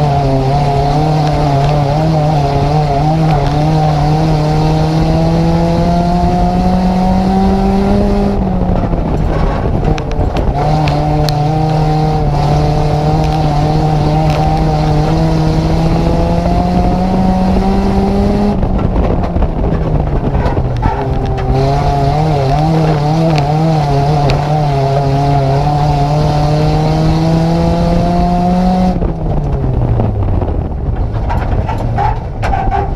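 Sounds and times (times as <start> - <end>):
race car engine revving: 0.0 - 32.9
road and wind roar: 0.0 - 32.9.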